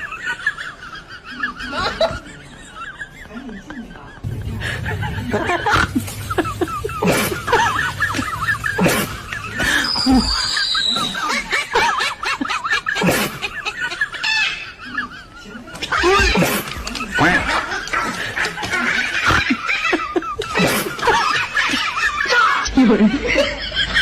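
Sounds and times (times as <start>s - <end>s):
high falling whistle: 7.4s - 11.5s
small bird chirping: 9.5s - 11.3s.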